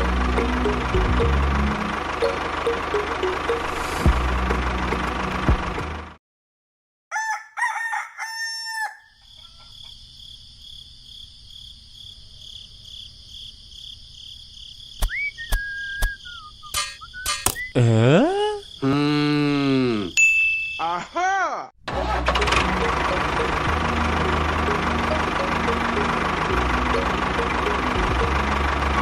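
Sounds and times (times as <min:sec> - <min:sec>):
high-pitched hum: 0:00.0 - 0:06.0, 0:15.6 - 0:20.1
rooster crowing: 0:07.1 - 0:09.9
whistle-like tone: 0:15.0 - 0:17.8.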